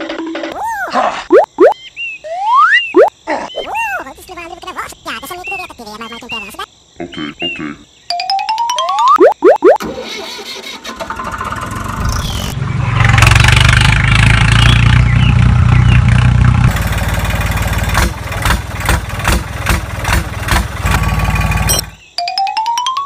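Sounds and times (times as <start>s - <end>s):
small pump engine running: 9.8s - 12.5s, 16.6s - 22.0s.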